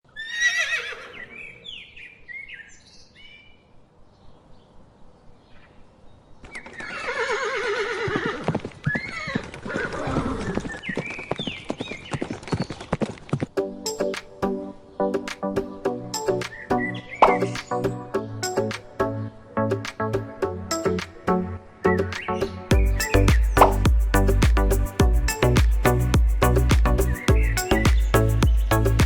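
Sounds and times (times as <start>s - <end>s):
horse whinnying: 0.1s - 1.4s, 6.7s - 10.6s
hooves clip-clopping: 8.0s - 14.3s, 22.7s - 29.0s
music: 13.6s - 29.0s
faint high chirps: 22.4s - 23.9s.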